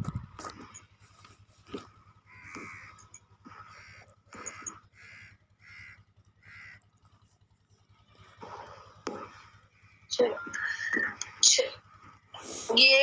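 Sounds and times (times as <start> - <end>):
faint bird calls: 0.0 - 13.0.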